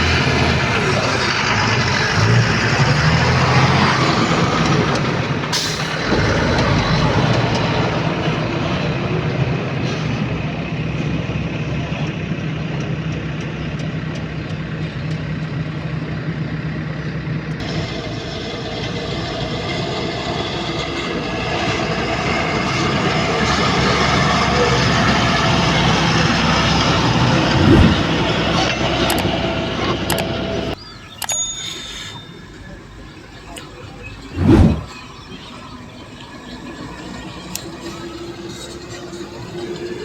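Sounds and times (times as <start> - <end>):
heavy diesel machinery engine: 0.0 - 40.0.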